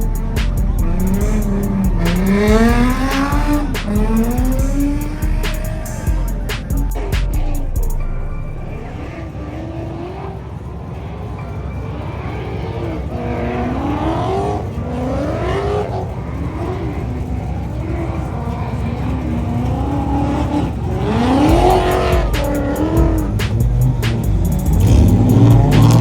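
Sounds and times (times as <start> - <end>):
sharp exhaust cracks: 0.0 - 9.5, 16.1 - 26.0
deep loud engine passing: 0.0 - 9.6, 21.5 - 26.0
car engines revving hard: 0.0 - 26.0.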